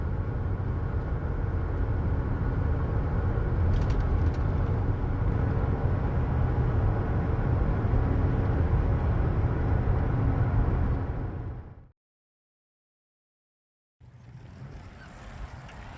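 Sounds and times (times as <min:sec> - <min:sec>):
vehicle engine rumbling: 0:00.4 - 0:11.8.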